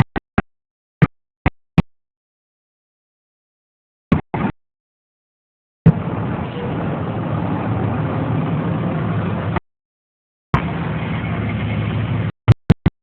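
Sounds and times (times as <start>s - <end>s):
fire engine idling: 5.9s - 9.6s, 10.6s - 12.3s.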